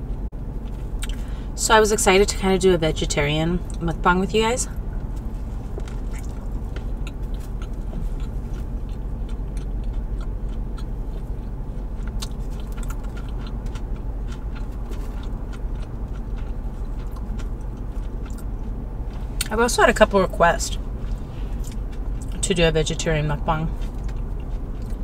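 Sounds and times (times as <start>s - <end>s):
steady low hum: 0.0s - 25.0s
wet mouth clicks and smacks: 1.0s - 1.2s
biting and chewing burger: 4.7s - 19.5s, 20.8s - 22.4s, 23.7s - 25.0s.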